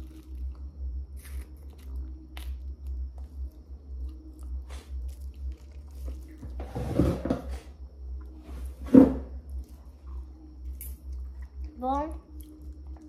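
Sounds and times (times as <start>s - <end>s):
person chewing ice pop: 0.0s - 6.6s.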